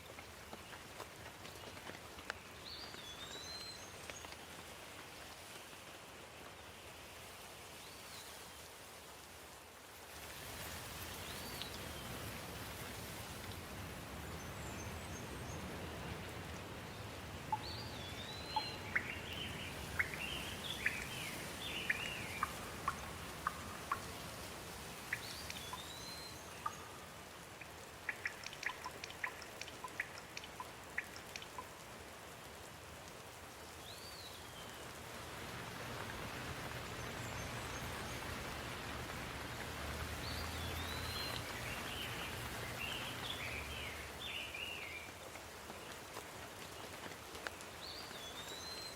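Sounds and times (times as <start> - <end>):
steady rain falling: 0.0 - 48.9
bird calling: 17.5 - 24.1.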